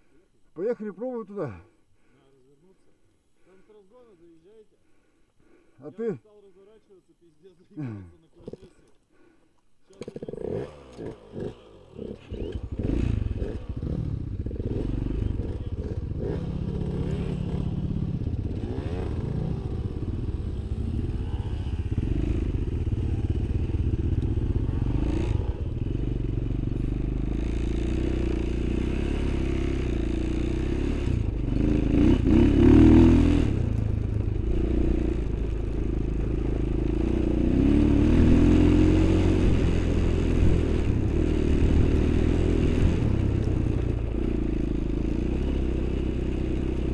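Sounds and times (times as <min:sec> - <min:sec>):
off-road vehicle engine revving: 0:09.9 - 0:46.9.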